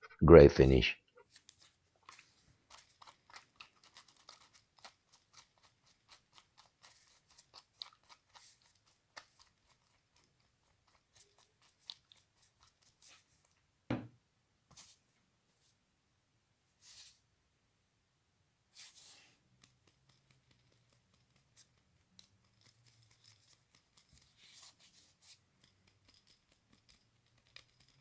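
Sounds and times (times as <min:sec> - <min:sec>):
small brush scratching: 0:01.2 - 0:13.6, 0:14.7 - 0:15.8, 0:16.8 - 0:17.3, 0:18.7 - 0:28.0
knock: 0:13.9 - 0:14.2.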